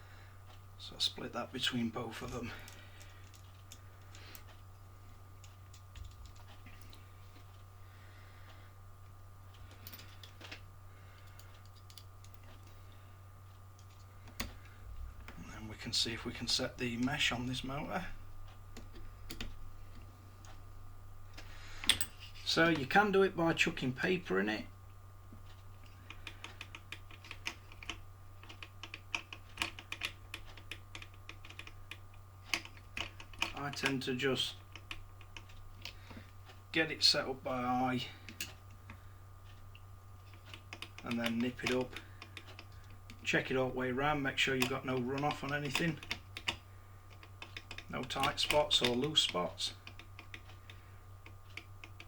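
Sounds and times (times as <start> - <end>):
steady low hum: 0.0 - 52.0
hand tools clicking and tapping: 21.4 - 22.2, 25.8 - 36.3, 38.2 - 39.0, 39.7 - 52.0.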